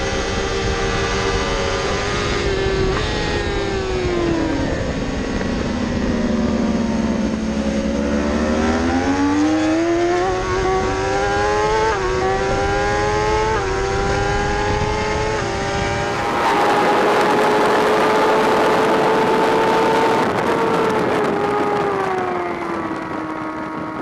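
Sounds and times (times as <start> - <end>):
motorcycle engine revving: 0.0 - 24.0
wind noise: 0.0 - 24.0.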